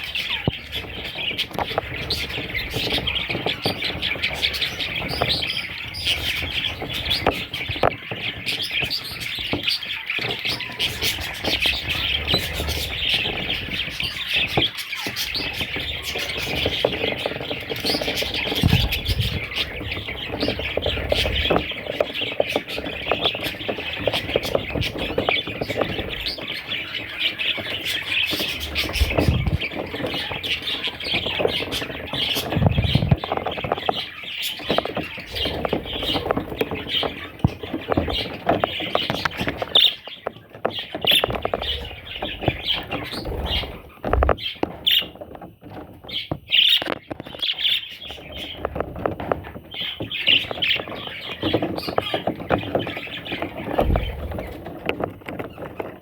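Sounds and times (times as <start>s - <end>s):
budgerigars chattering: 0.0s - 45.2s, 46.1s - 48.8s, 49.6s - 54.6s
low thuds: 53.6s - 54.7s.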